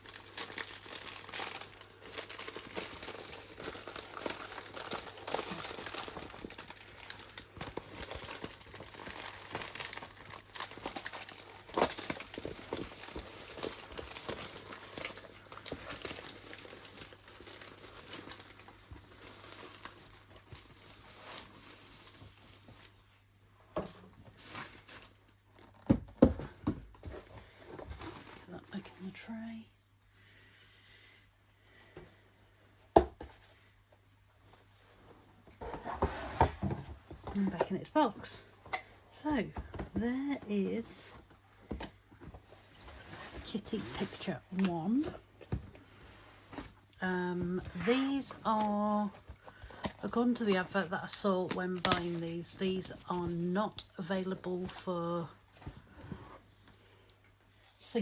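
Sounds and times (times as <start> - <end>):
plastic packaging crinkling: 0.0 - 23.0, 47.6 - 53.9.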